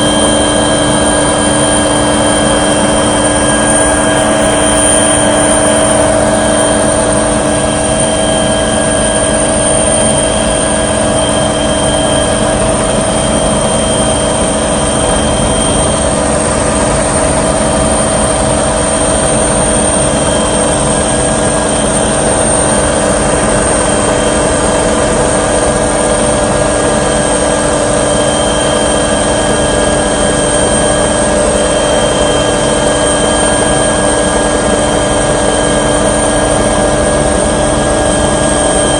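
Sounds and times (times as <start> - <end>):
small aircraft engine drone: 0.0 - 38.9.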